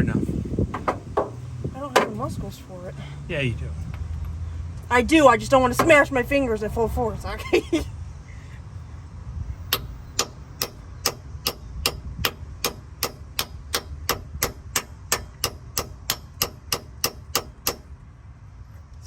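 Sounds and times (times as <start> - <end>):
hammer tapping metal: 9.7 - 17.9.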